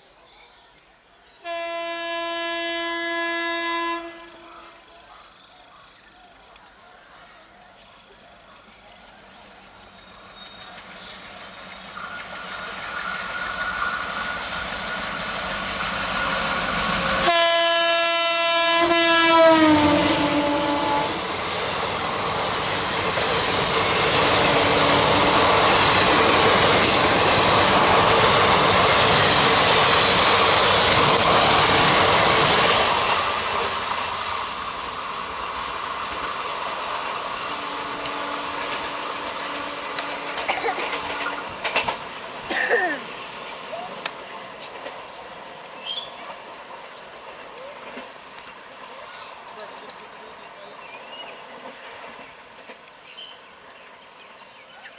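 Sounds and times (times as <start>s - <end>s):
locomotive horn: 1.4s - 4.8s, 17.0s - 21.4s, 24.2s - 26.2s, 37.4s - 41.1s
train coaches rumbling and clattering: 6.7s - 54.9s.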